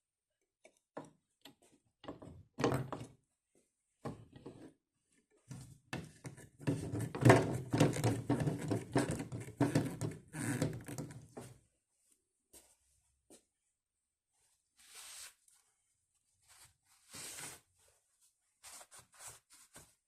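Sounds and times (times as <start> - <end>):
knocks and thumps of hard objects: 6.0 - 11.1.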